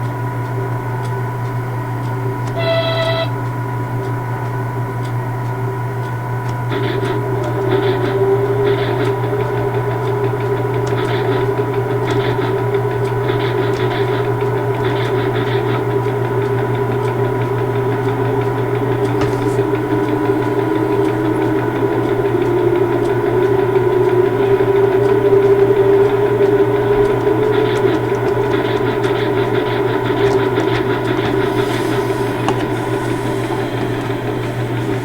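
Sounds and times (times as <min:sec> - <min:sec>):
locomotive humming: 0:00.0 - 0:35.0
held higher tone: 0:02.6 - 0:03.4.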